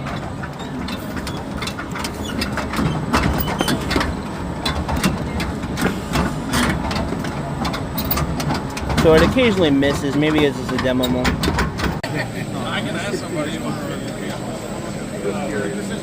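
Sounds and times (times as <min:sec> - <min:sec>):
chain and rollers clacking: 0:00.0 - 0:12.0
conveyor mechanical drone: 0:00.0 - 0:16.0.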